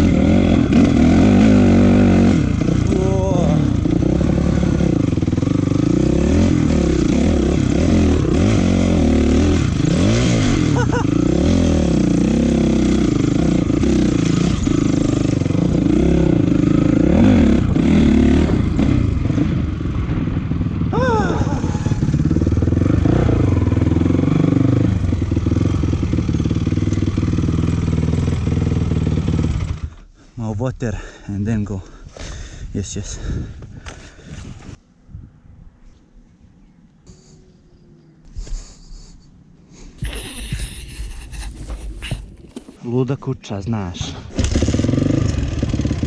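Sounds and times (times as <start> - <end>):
dirt bike engine revving: 0.0 - 30.0, 40.0 - 42.8, 44.2 - 46.0.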